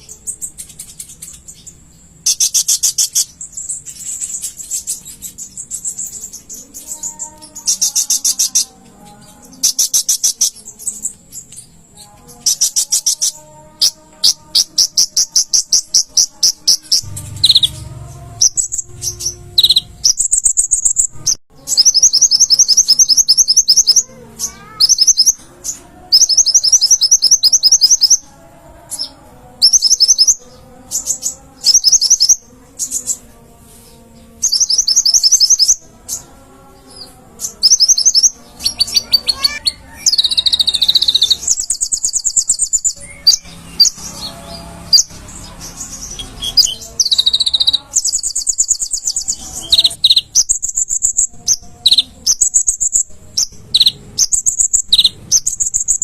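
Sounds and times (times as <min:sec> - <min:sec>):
sunbird trilling song: 0:00.0 - 0:28.3, 0:28.9 - 0:33.3, 0:34.0 - 0:56.0.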